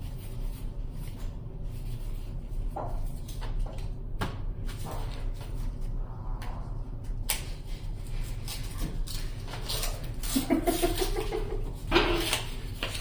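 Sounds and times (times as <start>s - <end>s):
cards and wrappers rustling: 7.6s - 13.0s.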